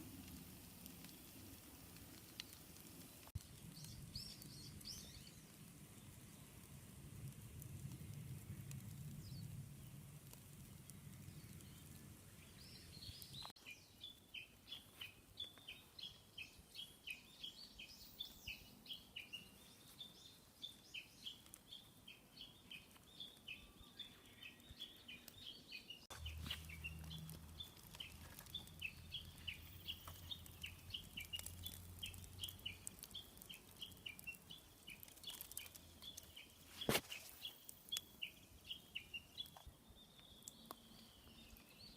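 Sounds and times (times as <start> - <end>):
small bird chirping: 2.2 - 6.5, 10.8 - 41.9.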